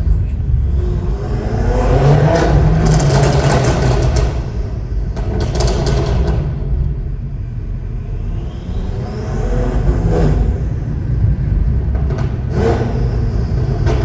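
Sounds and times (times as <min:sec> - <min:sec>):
car engine accelerating hard: 0:00.0 - 0:14.0
exhaust pops and crackles: 0:02.2 - 0:07.1.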